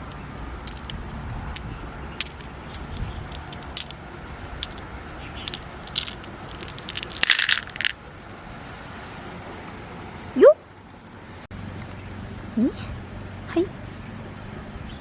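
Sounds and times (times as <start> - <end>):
low steady rumble: 0.0 - 15.0
clicks of hard shell handled: 0.7 - 1.6, 2.2 - 4.9, 5.5 - 8.0.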